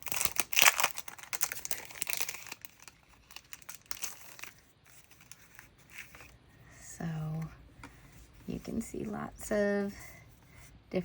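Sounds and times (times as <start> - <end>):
sticker packaging crinkling: 0.0 - 6.4.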